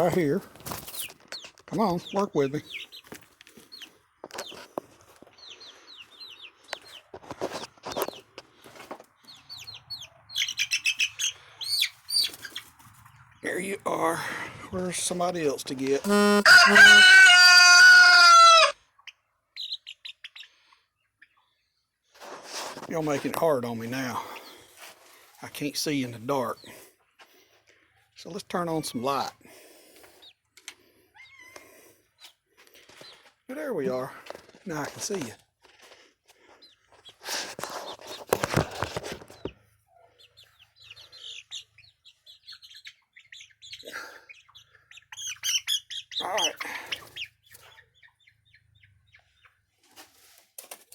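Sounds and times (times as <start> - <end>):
faint chick peeps: 0.9 - 13.4, 16.0 - 22.3, 27.8 - 34.1, 36.4 - 50.4
cockerel crowing: 16.0 - 18.8.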